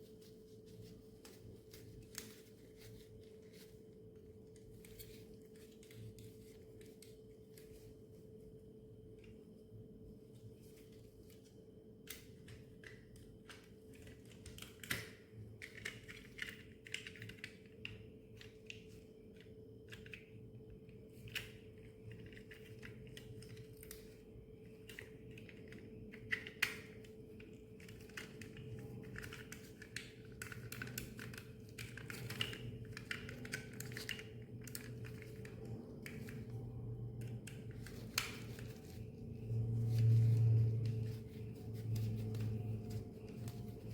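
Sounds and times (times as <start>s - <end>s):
faint hum: 0.0s - 43.9s
plastic toy parts clicking: 12.1s - 18.8s, 24.8s - 36.6s.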